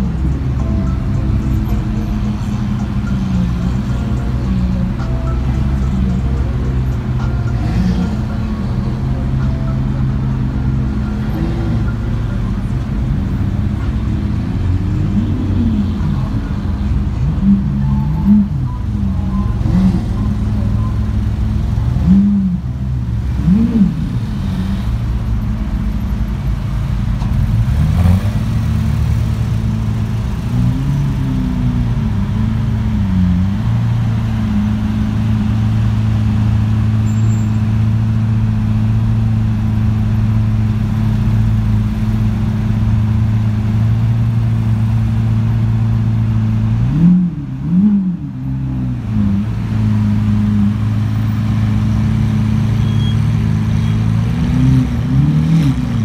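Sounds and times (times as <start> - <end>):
engine throttle blips: 0.0 - 30.7
sports car engines idling: 0.0 - 56.0.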